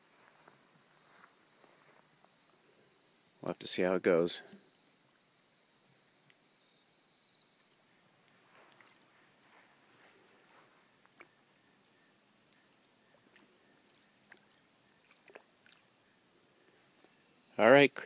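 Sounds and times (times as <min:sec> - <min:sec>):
high-pitched insect chorus: 0:00.0 - 0:18.0
faint ticks: 0:06.2 - 0:06.4, 0:14.2 - 0:15.8.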